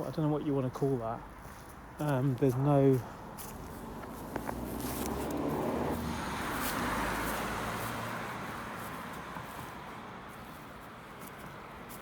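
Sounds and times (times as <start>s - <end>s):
vehicle passing by: 3.3s - 10.7s.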